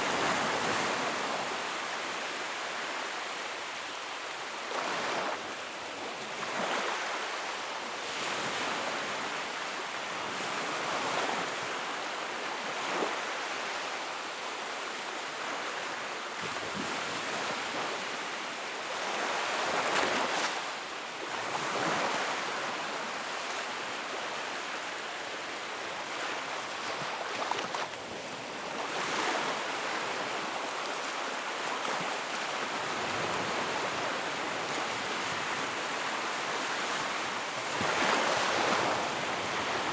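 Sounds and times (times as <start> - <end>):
sea waves breaking: 25.8 - 39.9.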